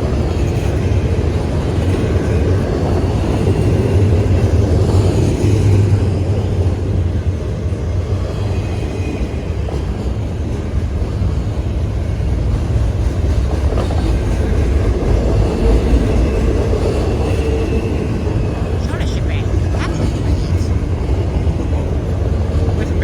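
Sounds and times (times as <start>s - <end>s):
train cars running on rails: 0.0s - 23.0s
train passing close by: 0.0s - 23.0s.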